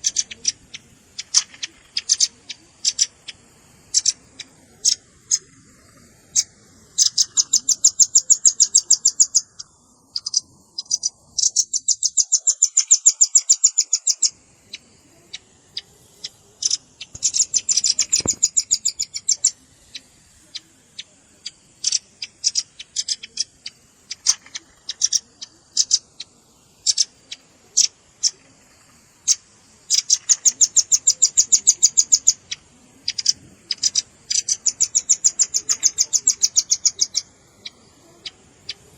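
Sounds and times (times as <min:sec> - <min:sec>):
bird high chips and trills: 0:00.0 - 0:38.9.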